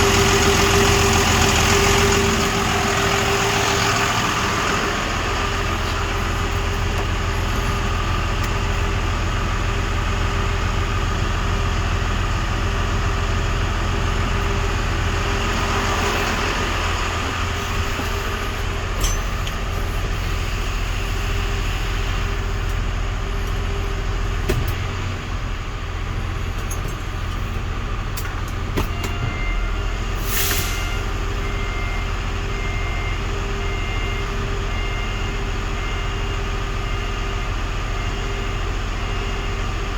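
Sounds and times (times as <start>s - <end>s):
diesel truck engine idling: 0.0s - 39.9s
short hiss of air: 30.2s - 31.0s.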